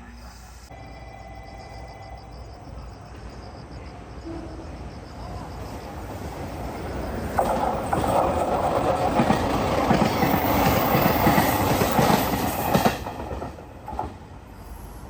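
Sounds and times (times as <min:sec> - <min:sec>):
train wheels clattering on rails: 0:04.6 - 0:15.0.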